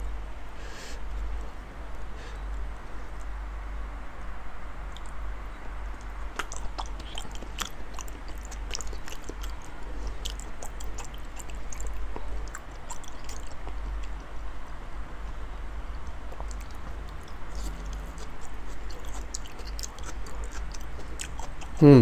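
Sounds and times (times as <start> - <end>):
lip and saliva clicks: 4.9 - 14.4, 15.3 - 21.8
wet chewing and smacking: 4.9 - 21.8.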